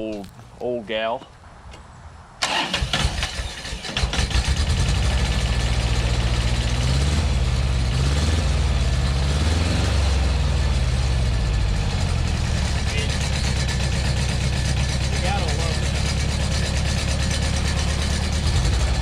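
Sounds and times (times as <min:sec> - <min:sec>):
starter motor cranking: 0:02.4 - 0:04.8
diesel engine running: 0:02.4 - 0:19.0.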